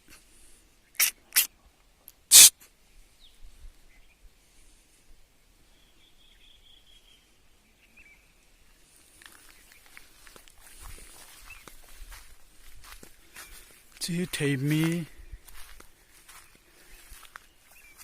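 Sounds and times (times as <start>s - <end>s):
short sharp noises: 1.0s - 1.5s, 2.2s - 2.6s
thin high call: 2.3s - 2.6s
faint bird chirps: 5.6s - 8.8s, 16.1s - 18.0s.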